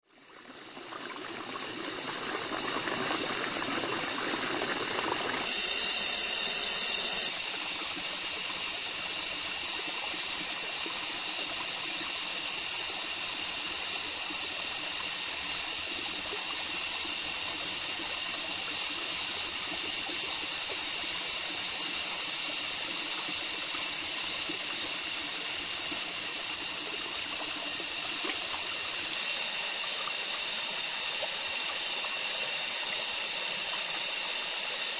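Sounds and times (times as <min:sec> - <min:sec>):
water running: 0:00.1 - 0:34.9
high steady hiss: 0:02.8 - 0:34.9
rapid high pulsing: 0:04.7 - 0:09.4.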